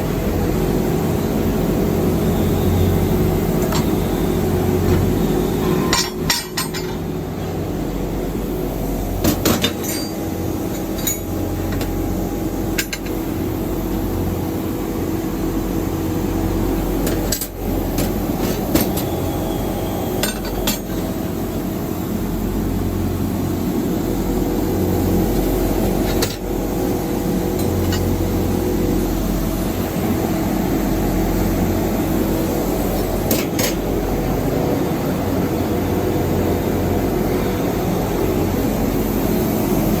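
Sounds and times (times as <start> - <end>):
machinery hum: 0.0 - 40.0
metallic clanks and clinks: 5.6 - 7.1, 9.2 - 12.0.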